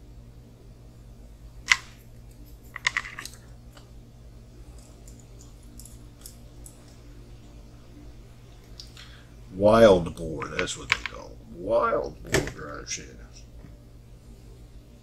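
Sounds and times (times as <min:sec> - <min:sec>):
steady low hum: 0:00.0 - 0:15.0
small hard parts clicking: 0:02.7 - 0:03.4.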